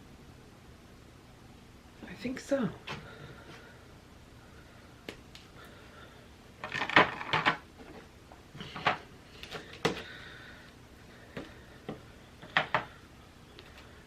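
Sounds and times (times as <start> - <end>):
pieces clattering on table: 6.6 - 8.0.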